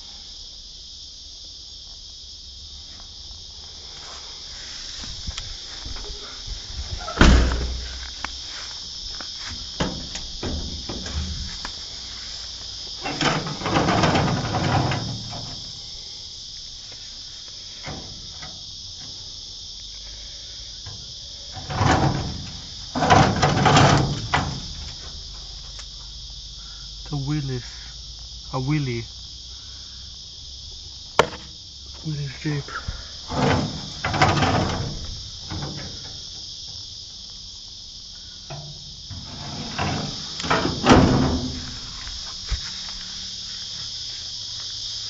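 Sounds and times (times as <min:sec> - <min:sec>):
crickets chirring: 0:00.0 - 0:45.0
rustling and scraping: 0:02.8 - 0:26.4, 0:31.2 - 0:45.0
sharp knock: 0:31.2 - 0:31.5.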